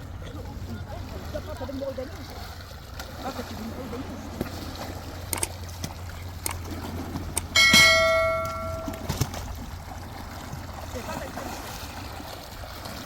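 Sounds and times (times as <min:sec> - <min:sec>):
metal vessel ringing: 0:07.6 - 0:09.2
small knocks and clinks: 0:07.6 - 0:09.2.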